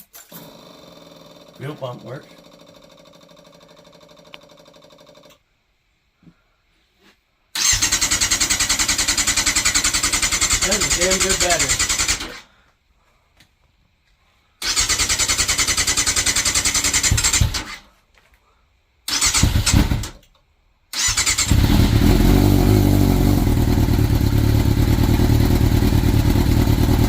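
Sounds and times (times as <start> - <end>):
electric starter cranking: 7.6 - 12.5, 14.6 - 17.9, 19.1 - 26.9
motorcycle engine running: 21.4 - 27.0.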